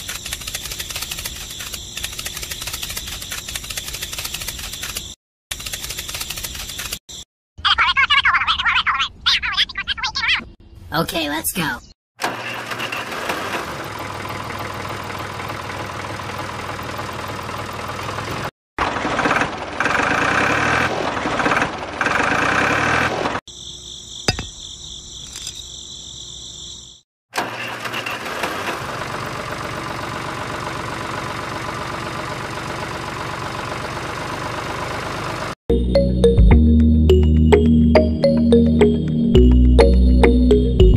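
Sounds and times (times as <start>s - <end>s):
small motor running: 0.0s - 7.0s.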